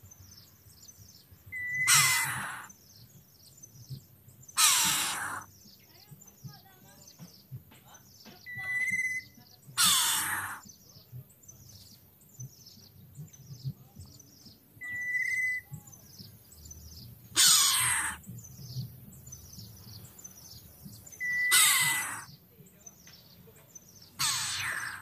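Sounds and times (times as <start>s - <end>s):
birds chirping: 0.0s - 25.0s
loud harsh bird calls: 1.5s - 3.2s, 4.4s - 5.8s, 8.1s - 10.8s, 14.8s - 16.3s, 17.2s - 22.4s, 23.8s - 25.0s.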